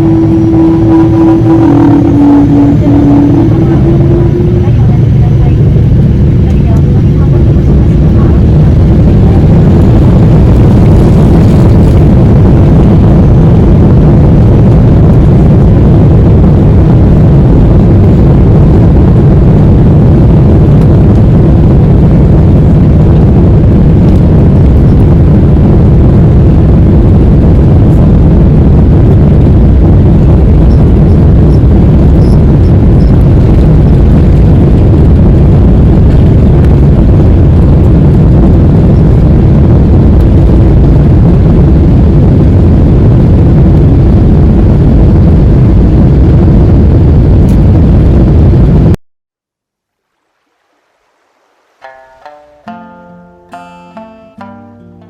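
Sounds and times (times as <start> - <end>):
aircraft rumble: 0.0 - 49.0
faint steady hum: 0.0 - 55.0.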